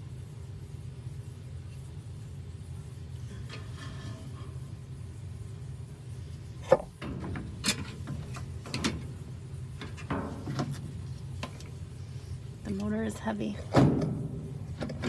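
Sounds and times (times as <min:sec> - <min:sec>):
steady low hum: 0:00.0 - 0:15.0
knocks and clunks of machine parts: 0:06.6 - 0:11.7, 0:13.7 - 0:15.0.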